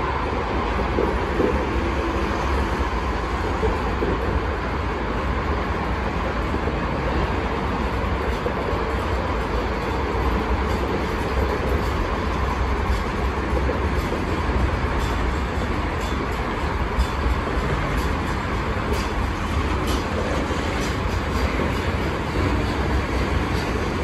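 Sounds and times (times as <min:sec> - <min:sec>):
train engine running: 0:00.0 - 0:24.0
train wheels rumbling on rails: 0:00.0 - 0:24.0.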